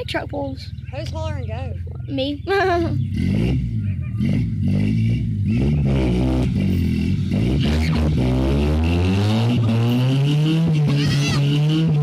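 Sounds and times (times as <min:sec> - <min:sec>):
truck engines revving hard: 0:02.1 - 0:12.0.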